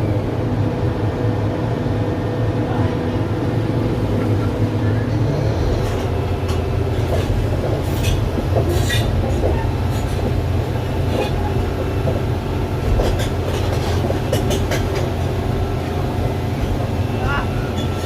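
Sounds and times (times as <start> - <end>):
steel tracks clanking and squealing: 4.2 - 18.0.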